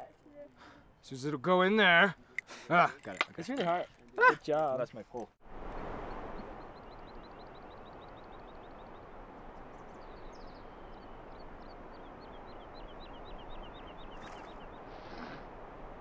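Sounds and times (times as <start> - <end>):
small bird chirping: 6.1 - 15.4.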